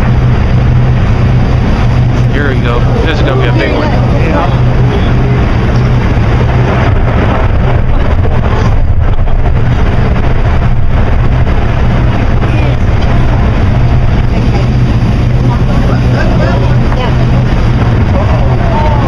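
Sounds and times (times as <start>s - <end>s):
engine drone: 0.0s - 19.0s
loud wind rushing: 0.0s - 19.0s.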